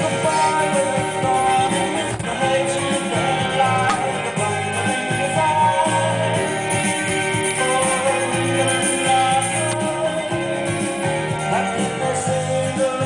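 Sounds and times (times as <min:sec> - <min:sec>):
guitar music from loudspeakers: 0:00.0 - 0:13.0
person singing: 0:00.0 - 0:13.0.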